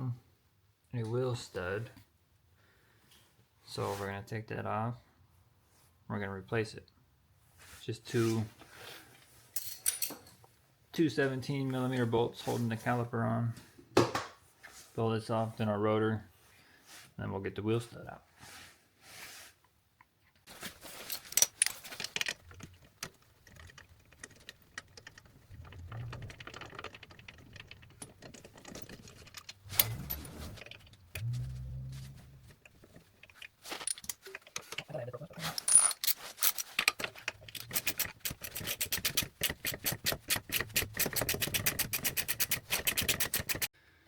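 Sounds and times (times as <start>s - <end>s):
metal tools clinking: 9.5s - 10.4s, 20.9s - 22.5s, 27.5s - 31.3s, 32.7s - 38.8s
hand ratchet clicking: 37.5s - 43.7s.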